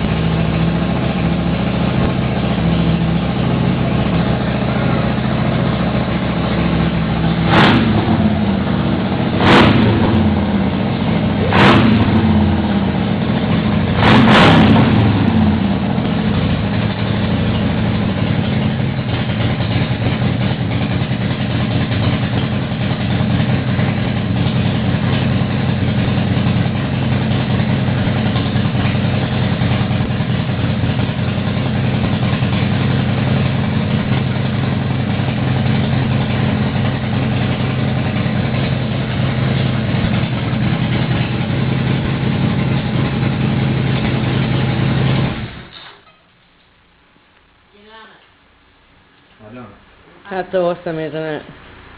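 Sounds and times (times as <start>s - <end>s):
motorcycle engine revving and idling: 0.0s - 45.8s.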